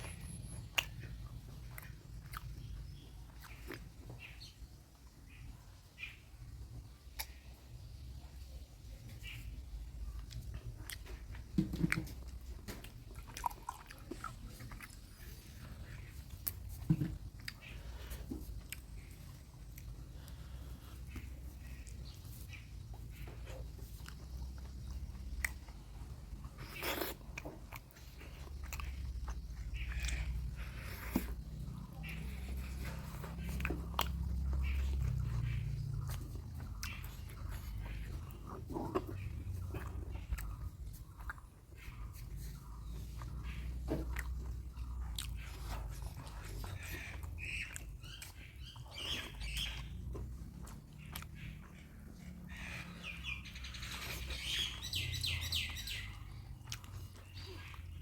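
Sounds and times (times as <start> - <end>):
close chewing: 0.0 - 58.0
low steady hum: 0.0 - 58.0
wet mouth clicks: 7.1 - 7.5.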